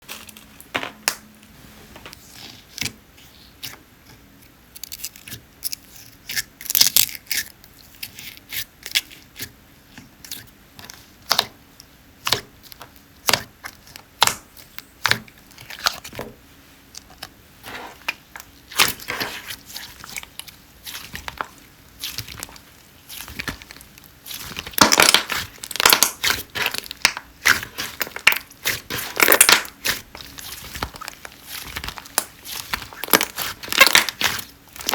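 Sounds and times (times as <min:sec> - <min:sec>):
slime squishing and crackling: 0:12.2 - 0:16.3, 0:17.0 - 0:34.9.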